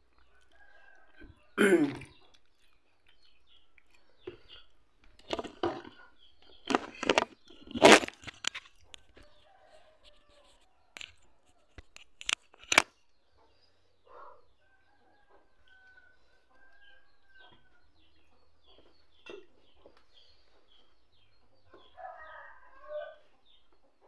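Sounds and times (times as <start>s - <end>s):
sharp clicks: 11.8s - 12.9s.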